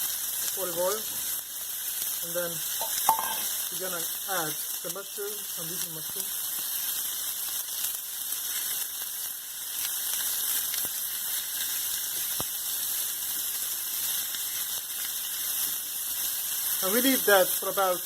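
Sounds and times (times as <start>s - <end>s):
meat frying in oil: 0.0s - 18.0s
faint oil pops: 2.8s - 3.5s.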